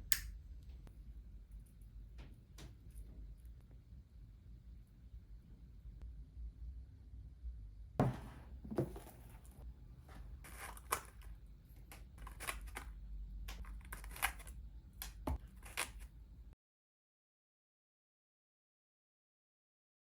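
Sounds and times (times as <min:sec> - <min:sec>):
small objects clicking and rustling: 0:08.8 - 0:16.1.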